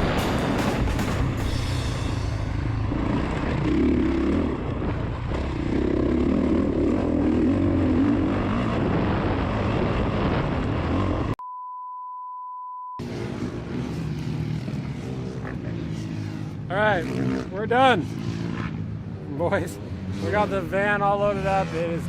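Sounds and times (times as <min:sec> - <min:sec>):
vehicle running noise: 0:00.0 - 0:11.4, 0:13.0 - 0:22.0.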